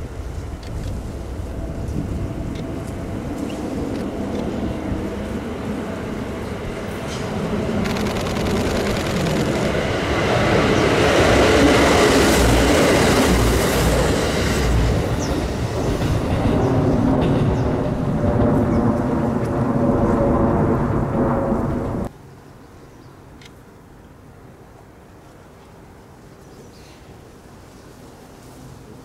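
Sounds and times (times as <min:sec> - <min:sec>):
electric train passing: 0:00.0 - 0:22.1.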